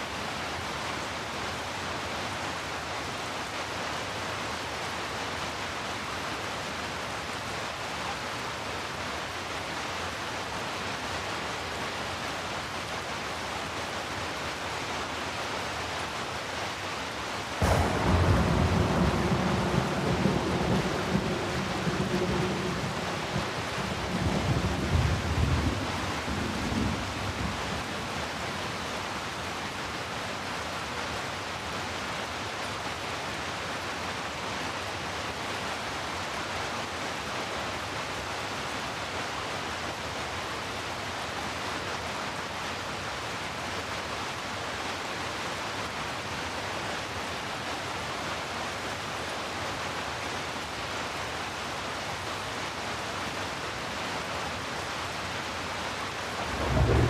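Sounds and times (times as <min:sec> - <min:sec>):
steady rain hiss: 0:00.0 - 0:57.0
thunder rumble: 0:17.6 - 0:27.9, 0:56.4 - 0:57.0.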